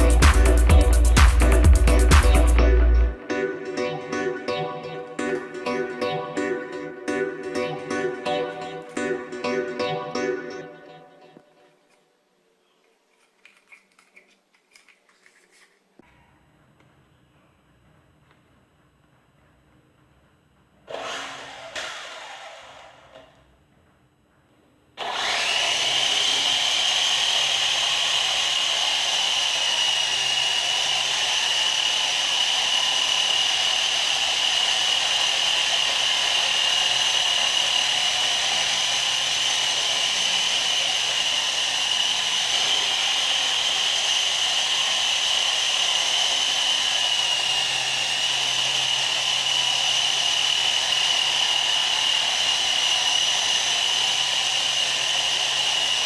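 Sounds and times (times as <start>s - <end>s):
small electric motor whining: 20.9s - 23.5s, 25.0s - 56.0s.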